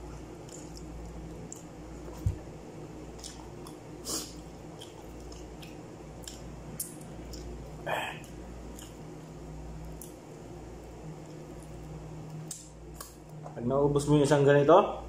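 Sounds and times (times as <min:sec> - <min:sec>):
steady low hum: 0:00.0 - 0:15.0
wet chewing and mouth smacking: 0:00.4 - 0:02.4, 0:03.1 - 0:13.4.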